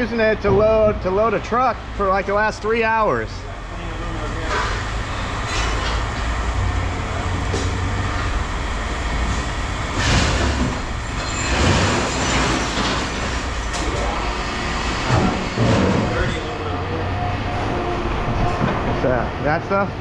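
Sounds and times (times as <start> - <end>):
heavy machine engine rumbling: 0.0 - 20.0.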